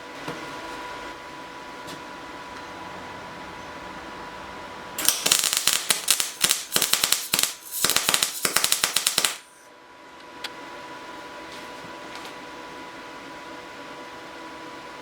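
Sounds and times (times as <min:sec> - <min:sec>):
welder arc crackling: 0:05.0 - 0:09.5.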